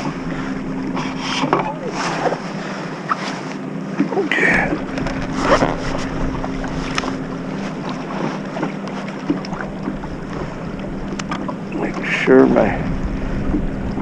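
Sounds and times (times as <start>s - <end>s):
wind buffeting microphone: 4.3s - 14.0s
knocks and clicks of gear: 4.8s - 11.6s.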